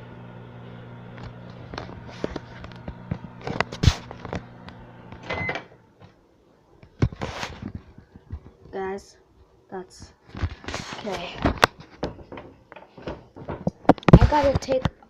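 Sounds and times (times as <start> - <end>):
microwave oven humming: 0.0 - 6.0.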